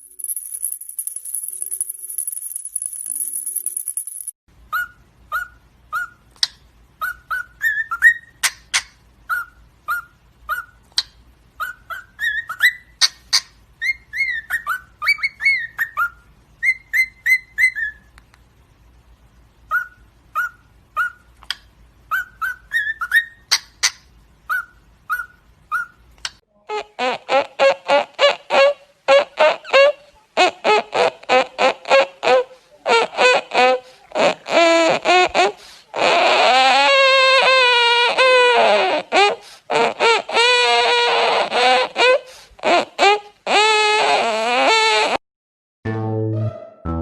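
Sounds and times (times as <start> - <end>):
maracas rattling: 0.0 - 4.4
parrot whistling chirping notes: 4.7 - 18.1, 19.7 - 21.3, 22.1 - 26.0.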